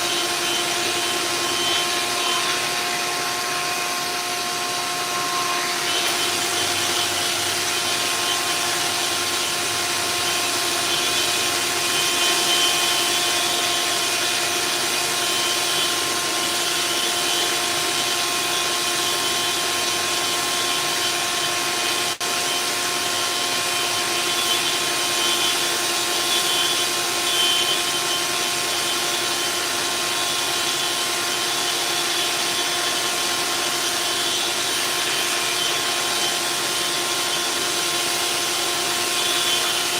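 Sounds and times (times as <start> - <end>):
electric sander on metal hull: 0.0 - 39.9.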